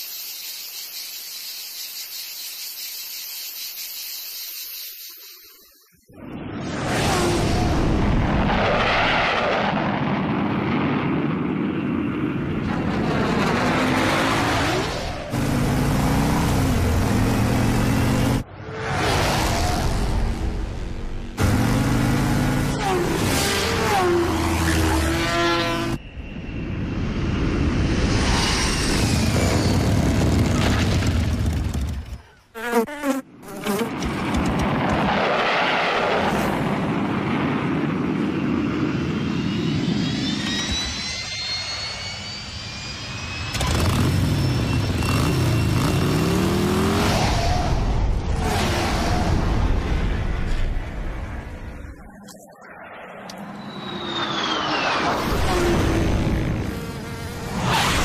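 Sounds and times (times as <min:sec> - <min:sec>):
cartoon insect wings buzzing: 0:00.0 - 0:05.8, 0:32.6 - 0:33.9, 0:55.2 - 0:58.0
rising whistling tones: 0:23.3 - 0:30.4, 0:38.2 - 0:46.3, 0:51.8 - 0:55.9.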